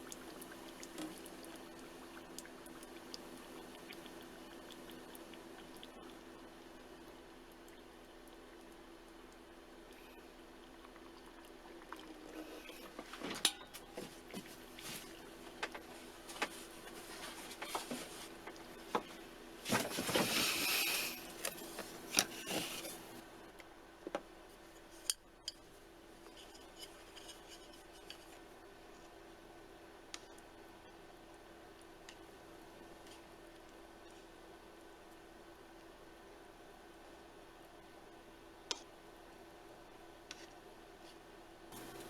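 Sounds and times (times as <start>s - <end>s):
container and utensils clinking: 19.7s - 23.1s.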